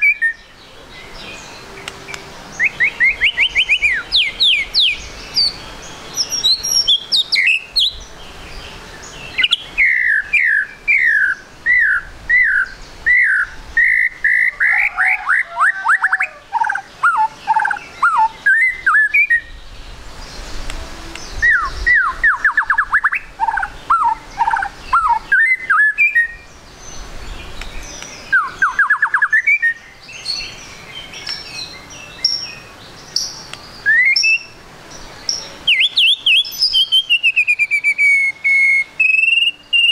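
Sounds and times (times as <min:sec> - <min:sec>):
bird singing down-sliding notes: 0:00.0 - 0:39.9.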